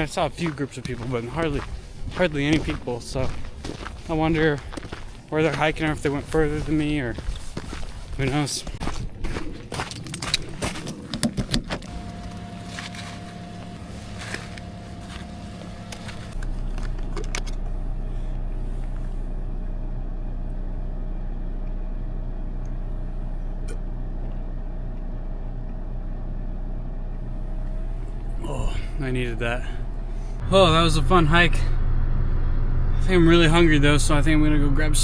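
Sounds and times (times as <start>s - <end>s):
car engine idling: 0.0s - 7.8s, 11.6s - 35.0s.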